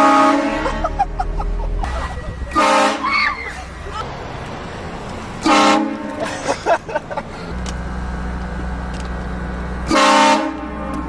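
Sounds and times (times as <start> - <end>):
car horn blast: 0.0 - 1.1, 1.8 - 3.3, 5.4 - 6.3, 9.9 - 11.0
low hum from car: 0.0 - 4.1, 5.4 - 11.0.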